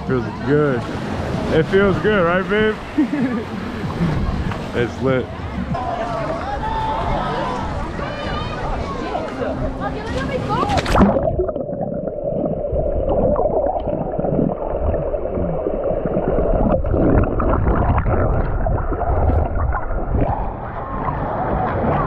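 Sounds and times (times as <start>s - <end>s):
underwater bubbling and gurgling: 10.6s - 22.0s.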